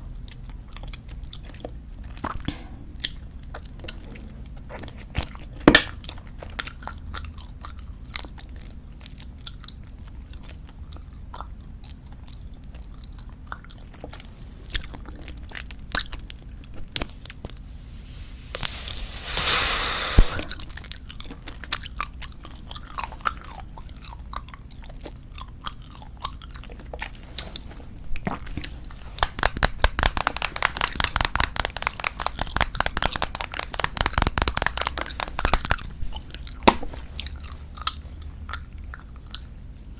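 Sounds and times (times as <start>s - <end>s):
gum chewing clicks and smacks: 28.6s - 39.5s
bubblegum bubble popping: 29.2s - 35.8s.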